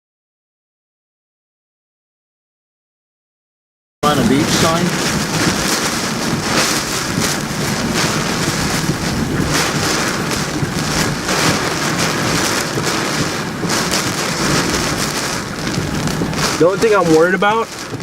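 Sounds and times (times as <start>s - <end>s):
gusting wind and driven rain: 4.0s - 18.0s.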